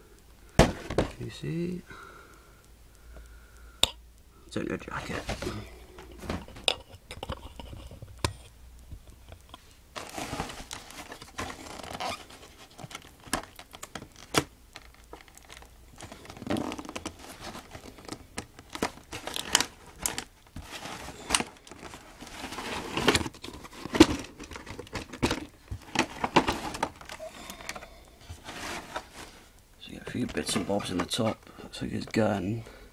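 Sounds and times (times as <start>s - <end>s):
packaging crinkling and tearing: 10.0s - 32.4s.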